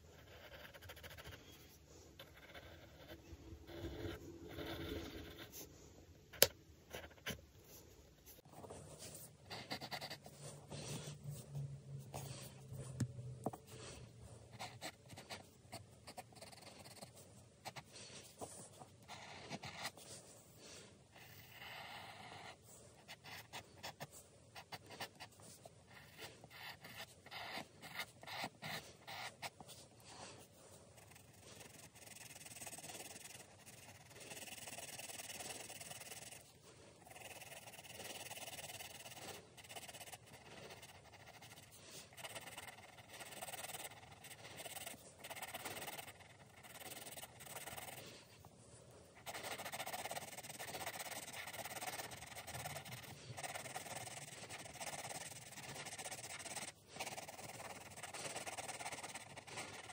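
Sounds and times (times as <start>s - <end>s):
drawing strokes scratching paper: 0.0s - 59.9s.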